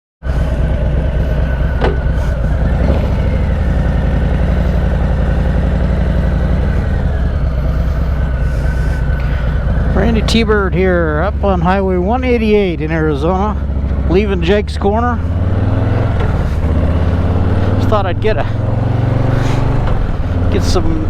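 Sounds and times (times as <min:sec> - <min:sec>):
motorcycle engine running: 0:00.2 - 0:21.0.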